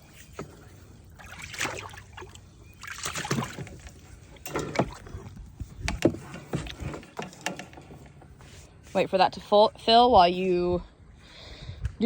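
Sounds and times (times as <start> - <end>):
water splashing into a trough: 1.2 - 5.2.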